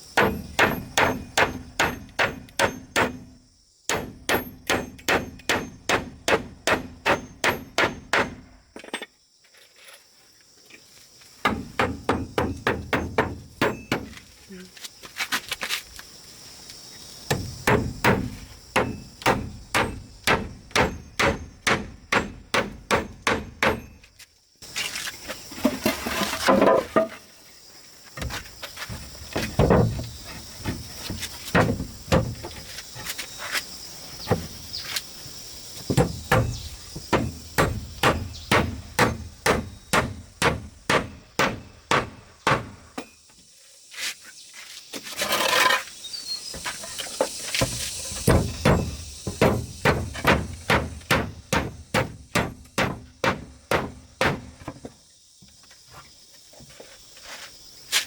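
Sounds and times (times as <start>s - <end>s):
hammering blows: 0.2s - 8.5s, 11.4s - 14.2s, 17.3s - 24.1s, 35.9s - 43.1s, 47.6s - 54.8s.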